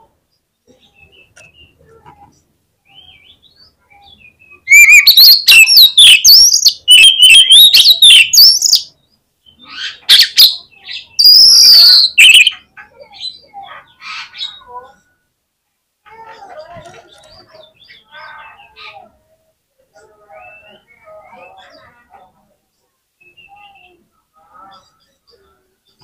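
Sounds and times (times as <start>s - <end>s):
faint bird chirps: 0.0s - 15.3s, 16.1s - 26.0s
songbird whistling song: 2.8s - 12.6s, 23.2s - 26.0s.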